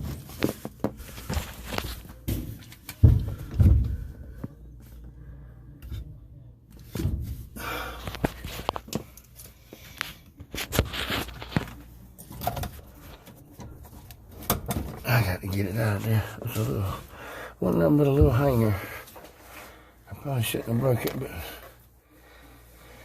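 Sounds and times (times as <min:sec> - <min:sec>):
heavy thumps: 0:02.2 - 0:04.5.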